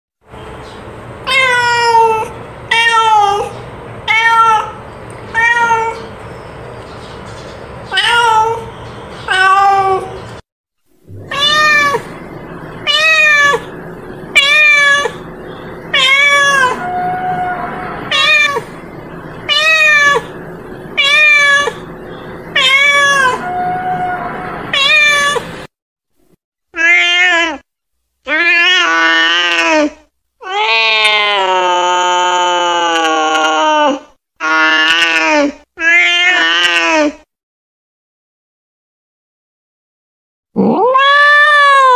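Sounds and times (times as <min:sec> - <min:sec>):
cat meowing: 0:04.1 - 0:06.1, 0:07.9 - 0:08.7, 0:09.3 - 0:10.2, 0:11.1 - 0:15.3, 0:15.9 - 0:21.9, 0:22.5 - 0:25.6, 0:26.8 - 0:27.6, 0:30.4 - 0:37.2, 0:40.6 - 0:41.9.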